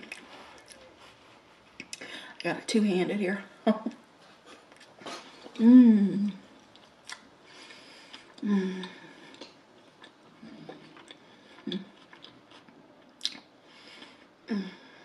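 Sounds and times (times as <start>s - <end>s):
person humming low: 5.6s - 6.4s
close chewing with wet squelches: 6.7s - 14.3s.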